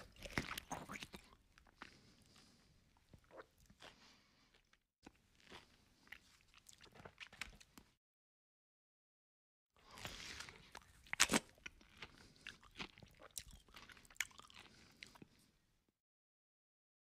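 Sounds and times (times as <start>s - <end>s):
wet chewing: 0.0s - 7.9s, 9.8s - 15.4s.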